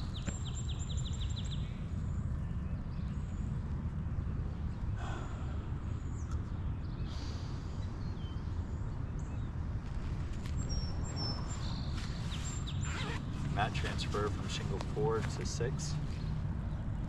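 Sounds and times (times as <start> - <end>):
rustle: 9.8 - 16.4.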